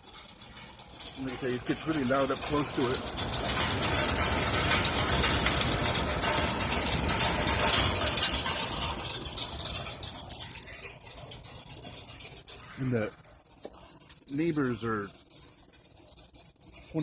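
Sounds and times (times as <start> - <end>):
vibrating hvac vent noise: 0.0 - 17.0.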